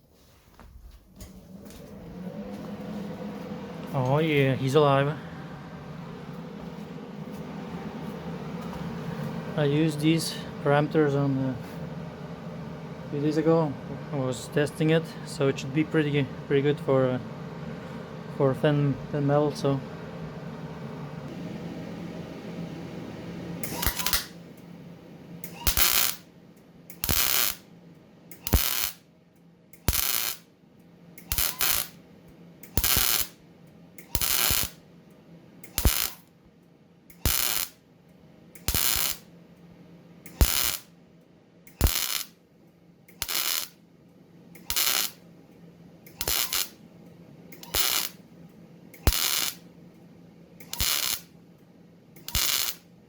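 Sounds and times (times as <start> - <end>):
low steady hum: 0.0 - 53.0
welding arc crackling: 23.6 - 24.4, 25.4 - 26.3, 26.9 - 27.7, 28.3 - 29.0, 29.8 - 30.5, 31.2 - 32.0, 32.6 - 33.4, 34.0 - 34.8, 35.6 - 36.3, 37.1 - 37.8, 38.6 - 39.3, 40.3 - 41.0, 41.7 - 42.4, 43.1 - 43.8, 44.6 - 45.2, 46.1 - 46.8, 47.5 - 48.2, 49.0 - 49.7, 50.6 - 51.3, 52.2 - 52.9.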